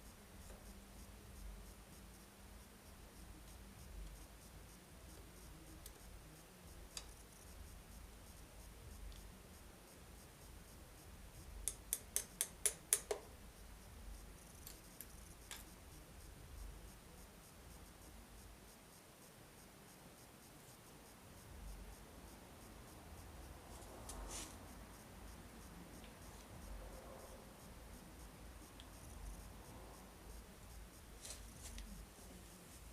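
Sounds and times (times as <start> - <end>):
sharp tool clicks: 11.7 - 13.3.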